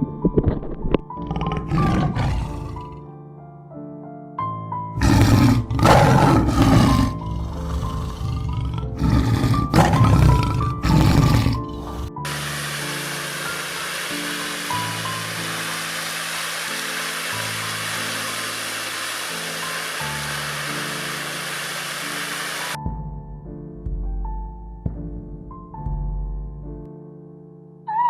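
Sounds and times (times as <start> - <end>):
rough animal roars: 1.2 - 3.0, 5.0 - 12.3
steady hiss: 12.3 - 22.8
background music with stepping melody: 22.8 - 27.4.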